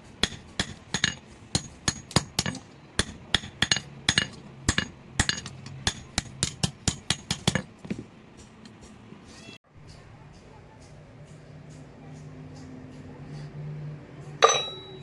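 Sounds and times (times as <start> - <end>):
hammer striking steel on anvil: 0.2 - 7.7, 14.3 - 15.0.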